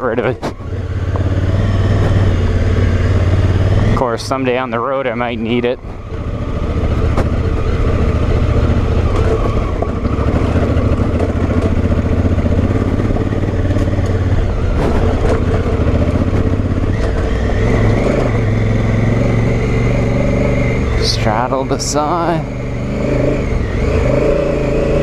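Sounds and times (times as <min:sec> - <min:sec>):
motorcycle engine running: 0:00.0 - 0:25.0
knocks and rattles: 0:05.8 - 0:18.8.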